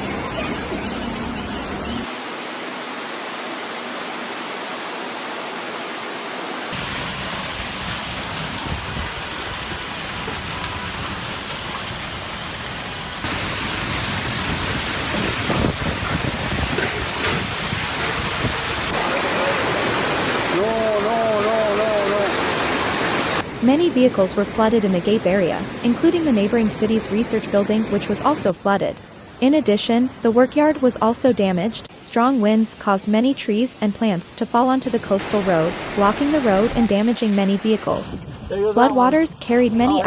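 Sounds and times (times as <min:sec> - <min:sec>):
heavy rain hissing: 0:06.7 - 0:14.0, 0:18.2 - 0:23.4, 0:35.1 - 0:37.8.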